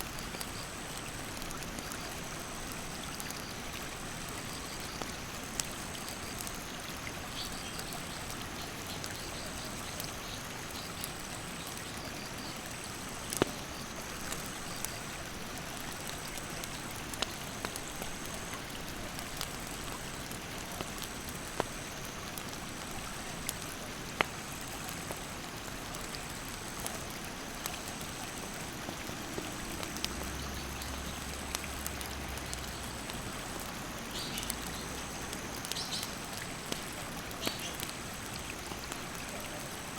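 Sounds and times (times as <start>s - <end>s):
campfire popping and crackling: 0.0s - 39.9s
high insect call: 28.6s - 39.5s.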